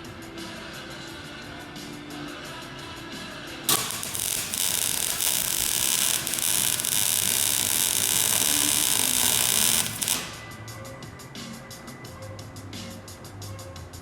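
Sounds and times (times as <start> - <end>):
welding arc crackling: 3.7 - 10.6.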